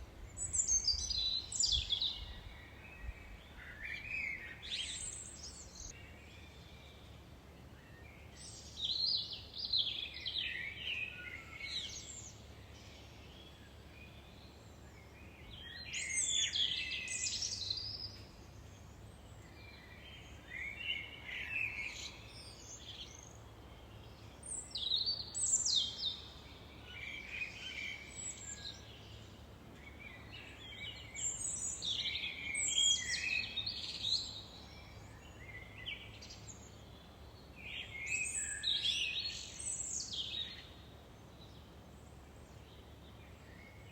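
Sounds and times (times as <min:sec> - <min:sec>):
songbirds singing: 0:00.0 - 0:43.9.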